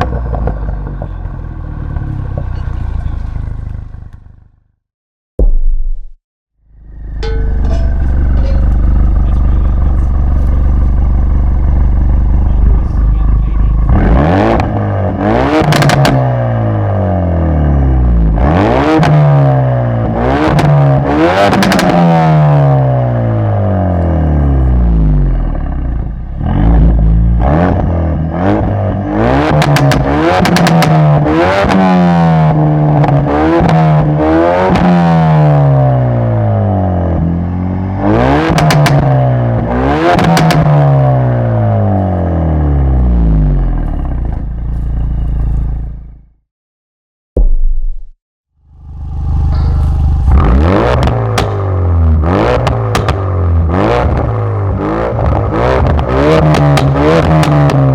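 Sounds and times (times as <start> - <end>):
exhaust crackles and pops: 0.0 - 1.3, 2.0 - 4.3, 15.6 - 16.3, 29.5 - 31.8, 38.5 - 40.9, 49.5 - 57.9
car engine revving: 6.8 - 46.1, 48.6 - 57.9.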